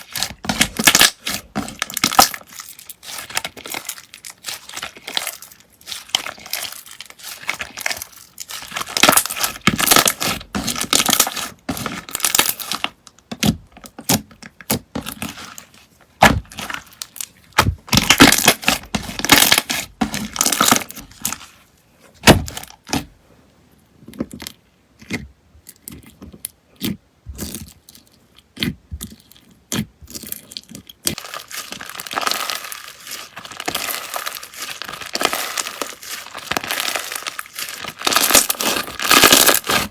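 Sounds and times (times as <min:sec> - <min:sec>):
slime crackling and popping: 0:00.0 - 0:15.6, 0:16.2 - 0:21.5, 0:29.7 - 0:39.9.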